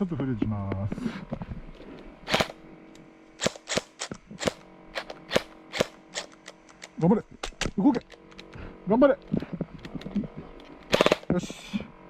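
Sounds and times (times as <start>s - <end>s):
airsoft gun firing pops: 3.4s - 8.2s, 10.9s - 11.4s.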